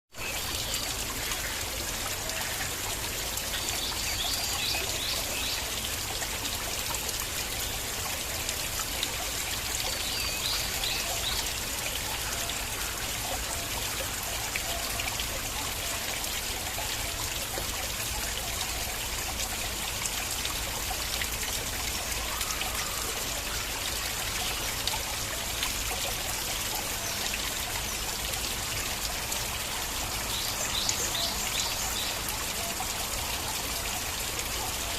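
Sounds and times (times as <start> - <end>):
stream trickling over rocks: 0.1 - 34.9.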